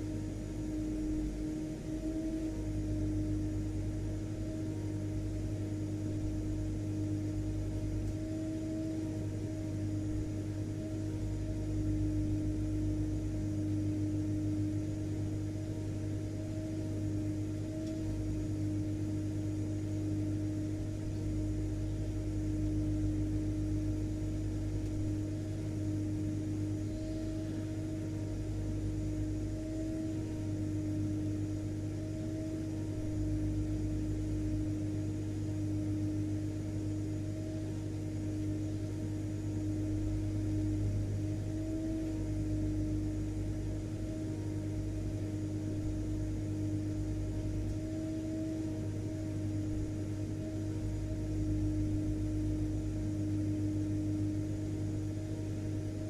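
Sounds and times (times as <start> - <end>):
vacuum cleaner running: 0.0 - 5.1.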